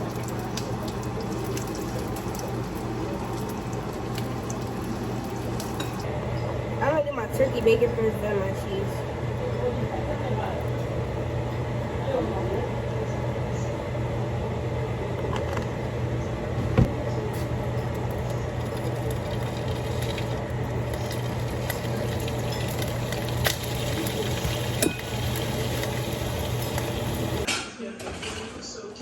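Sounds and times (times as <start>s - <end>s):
food sizzling: 0.0s - 6.1s, 17.8s - 27.5s
dishes clinking: 5.6s - 6.5s, 21.0s - 25.9s.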